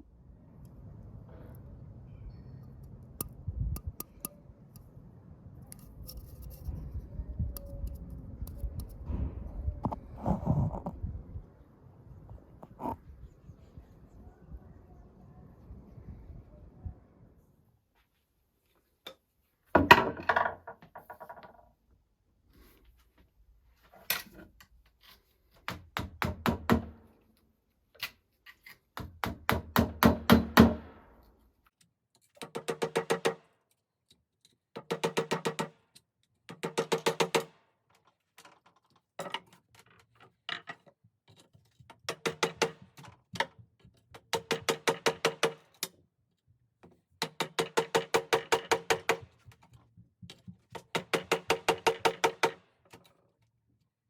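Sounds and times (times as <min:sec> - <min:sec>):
rapid hammer strikes: 0:29.0 - 0:31.0, 0:42.1 - 0:42.8, 0:44.3 - 0:45.7, 0:47.2 - 0:49.3, 0:50.8 - 0:52.6.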